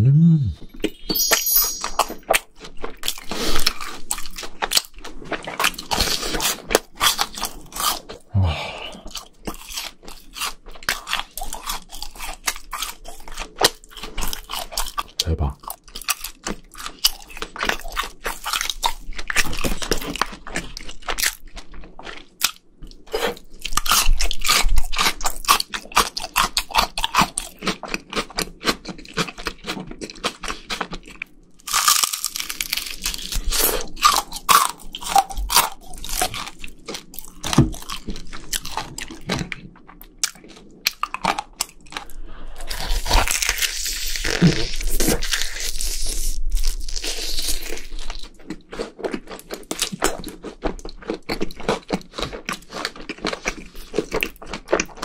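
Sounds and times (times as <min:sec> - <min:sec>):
person chewing crispy food: 0:02.2 - 0:55.0.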